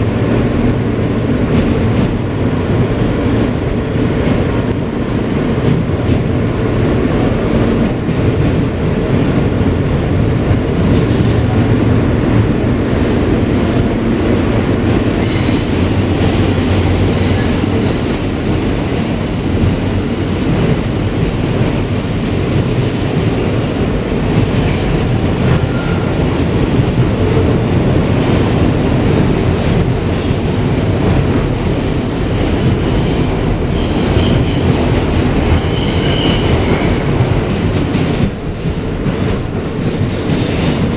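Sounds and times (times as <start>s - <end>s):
subway train rumbling on rails: 0.0s - 40.9s
high-pitched wheel squeal: 31.6s - 33.0s.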